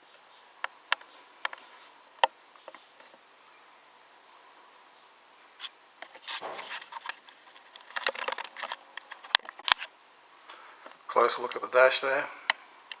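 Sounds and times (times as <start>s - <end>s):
model car being handled: 6.0s - 9.9s.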